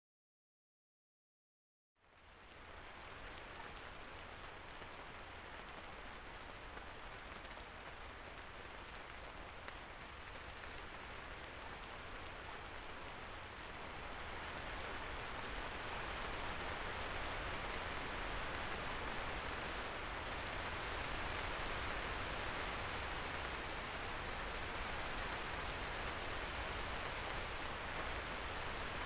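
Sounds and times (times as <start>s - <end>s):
heavy rain falling: 2.0s - 29.0s.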